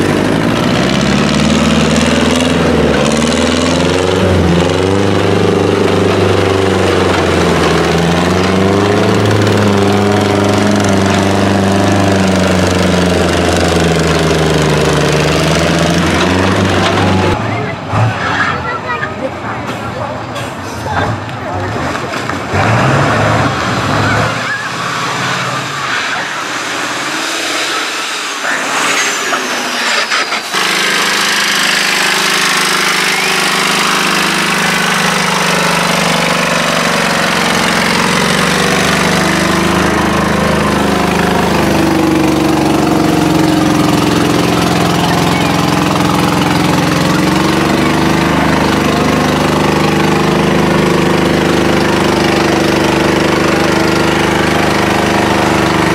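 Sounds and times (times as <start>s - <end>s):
outdoor noise: 0.0s - 55.9s
tractor engine running: 0.0s - 55.9s
voices: 16.4s - 22.6s, 23.8s - 27.0s, 31.8s - 36.2s, 42.4s - 50.6s.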